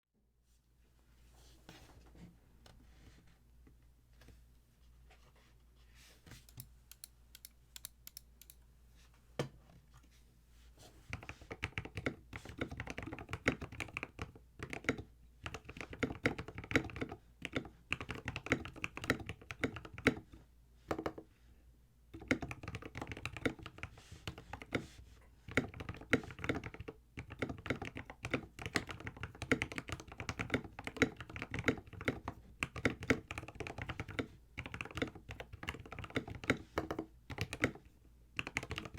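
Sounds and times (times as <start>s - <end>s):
mechanical keyboard typing: 11.1s - 20.2s, 22.2s - 24.8s, 25.5s - 38.9s.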